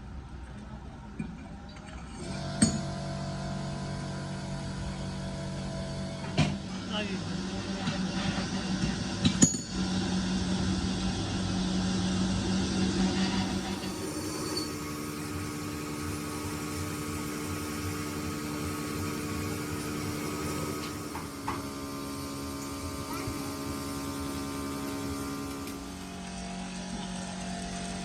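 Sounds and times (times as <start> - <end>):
machine hum with held tones: 2.1 - 28.0.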